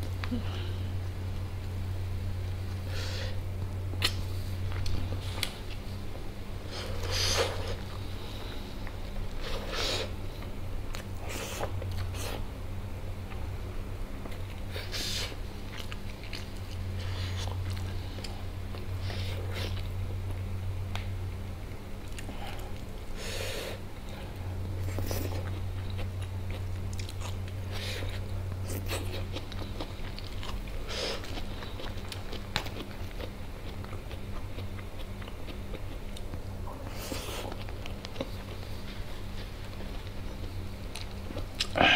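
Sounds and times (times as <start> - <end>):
steady low hum: 0.0 - 41.9
chewing rice: 14.2 - 20.5, 24.0 - 41.9.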